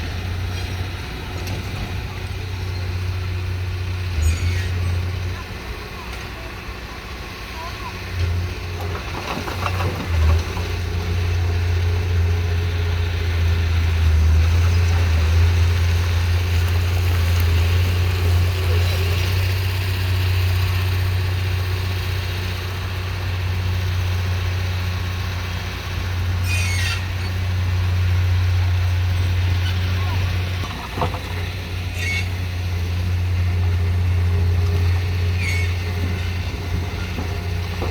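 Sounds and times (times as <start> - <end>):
heavy diesel machinery drone: 0.0 - 37.9
high squeal: 4.2 - 5.1, 26.4 - 27.5, 31.9 - 32.4, 35.2 - 36.0.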